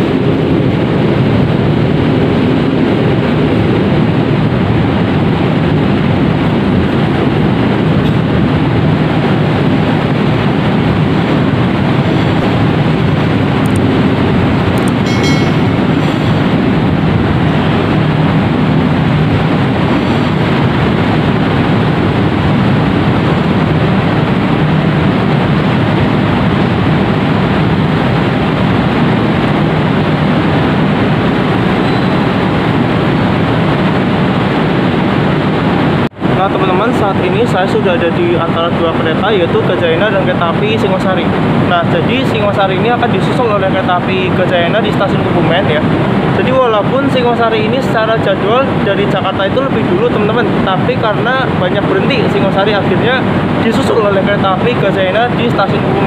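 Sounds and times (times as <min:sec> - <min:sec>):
train wheels rumbling on rails: 0:11.2 - 0:21.2.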